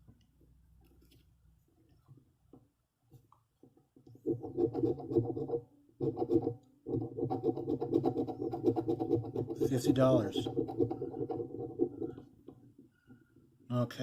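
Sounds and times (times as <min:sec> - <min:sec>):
lottery ticket scratching: 0:07.0 - 0:12.3.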